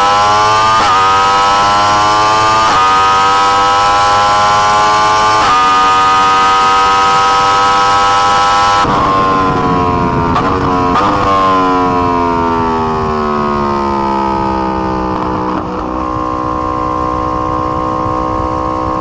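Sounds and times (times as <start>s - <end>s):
motorcycle engine at high revs: 0.0s - 19.0s
wind rush: 4.0s - 19.0s.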